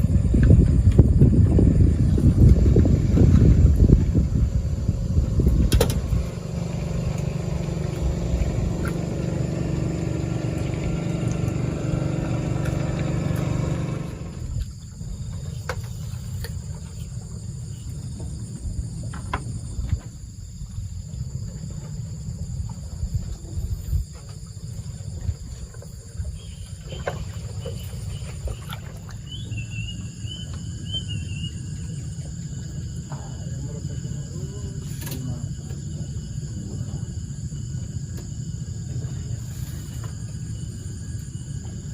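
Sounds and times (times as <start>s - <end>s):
faint insects chirring: 0.0s - 41.9s
low rumble: 0.0s - 41.9s.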